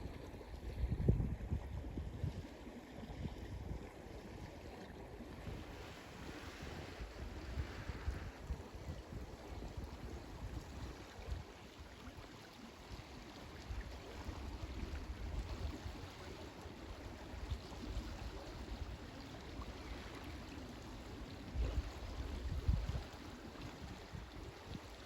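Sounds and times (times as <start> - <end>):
wind gusting on microphone: 0.6 - 2.4, 5.4 - 10.8
ocean water washing on shore: 1.7 - 25.0.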